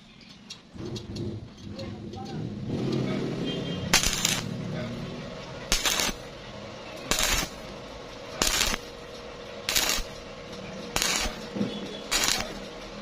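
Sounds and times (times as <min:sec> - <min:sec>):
welding arc crackling: 0:03.9 - 0:04.7, 0:05.5 - 0:13.0.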